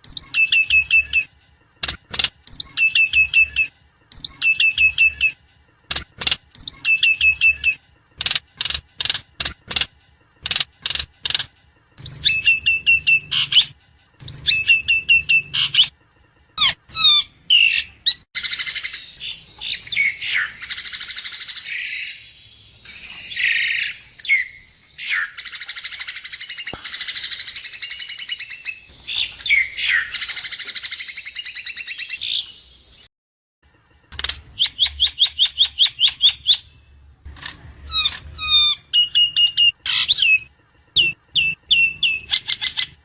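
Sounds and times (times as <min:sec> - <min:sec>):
myna chirping and chattering: 0:06.0 - 0:15.9.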